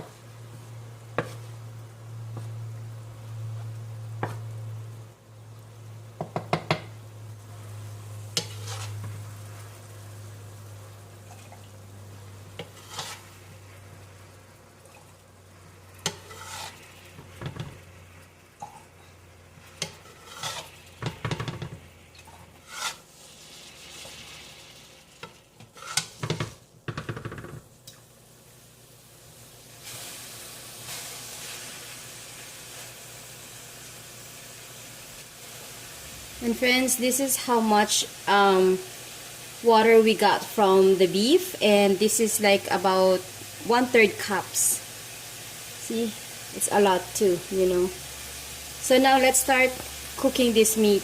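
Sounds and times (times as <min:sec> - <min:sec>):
low steady hum: 0:00.0 - 0:06.2
light sizzling: 0:00.0 - 0:51.0
metal spoon scraping a pan: 0:08.3 - 0:09.7, 0:12.5 - 0:13.4, 0:16.0 - 0:17.6, 0:19.6 - 0:24.4, 0:25.2 - 0:26.5.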